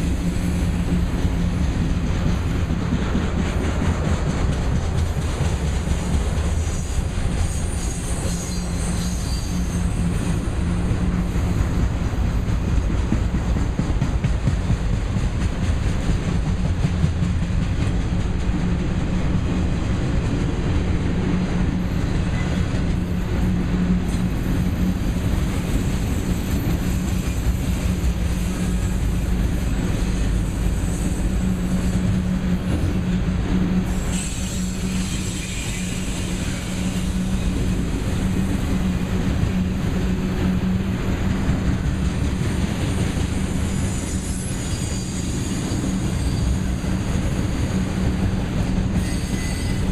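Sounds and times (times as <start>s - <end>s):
steel wheels rumbling on rails: 0.0s - 49.9s
high-pitched wheel squeal: 6.8s - 10.5s, 33.9s - 37.6s, 43.4s - 47.3s, 48.9s - 49.9s.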